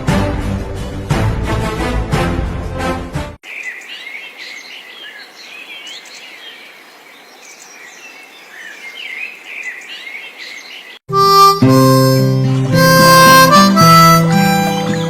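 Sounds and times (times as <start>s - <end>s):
birds chirping: 3.4s - 11.1s, 12.0s - 15.0s.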